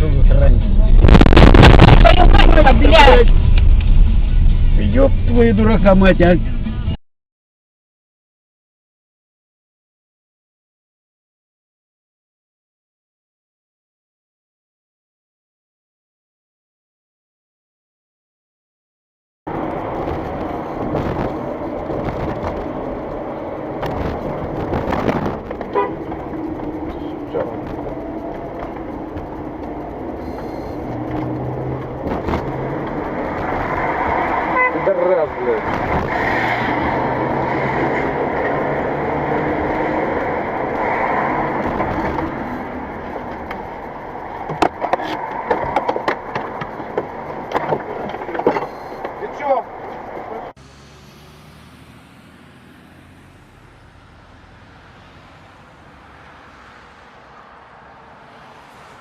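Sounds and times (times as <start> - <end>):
car engine and road noise: 0.0 - 7.0, 19.5 - 59.0
sharp irregular knocks and clicks: 43.2 - 49.3.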